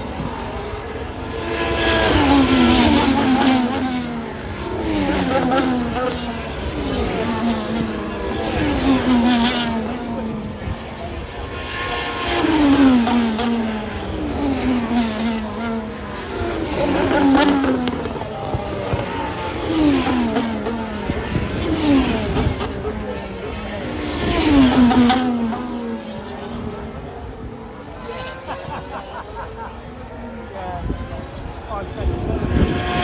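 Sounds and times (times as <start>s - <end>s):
racing cars passing: 0.0s - 33.0s.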